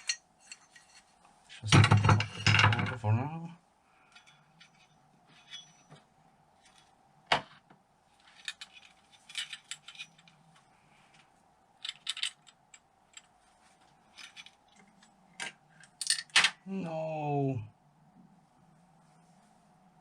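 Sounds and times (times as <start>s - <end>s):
metal parts and tools clinking: 0.0s - 3.0s, 4.0s - 7.0s, 8.2s - 10.5s, 11.8s - 16.6s.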